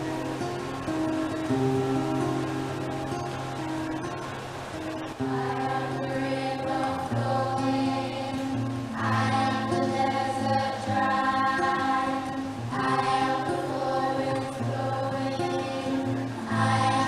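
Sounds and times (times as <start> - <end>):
choir singing: 5.2 - 17.0.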